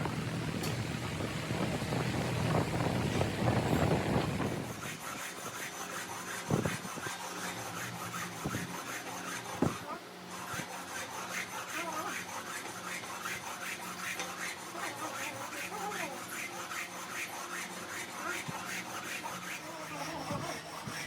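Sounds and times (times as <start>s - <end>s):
hand scraping strokes: 4.3s - 21.0s.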